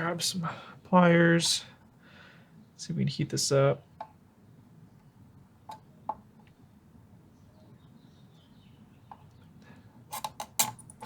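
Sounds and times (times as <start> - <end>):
faint birds chirping: 0.0 - 10.2.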